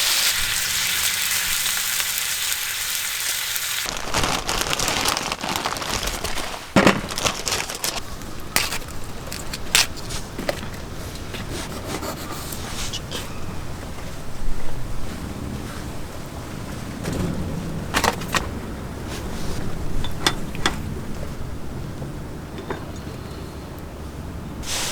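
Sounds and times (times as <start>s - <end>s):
food sizzling as it fries: 0.0s - 4.6s
coarse crackling: 0.0s - 11.3s.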